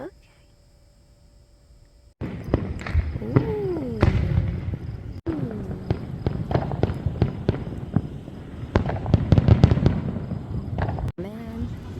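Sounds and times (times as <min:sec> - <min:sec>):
firecrackers cracking: 0:02.2 - 0:11.1.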